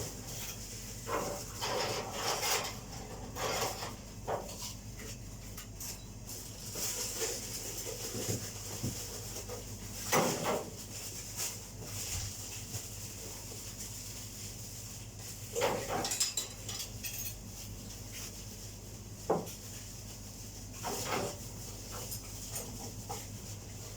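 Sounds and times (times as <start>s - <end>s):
kitchen clatters: 0.0s - 12.4s, 15.4s - 18.4s, 20.7s - 23.9s
rustling: 6.3s - 15.8s.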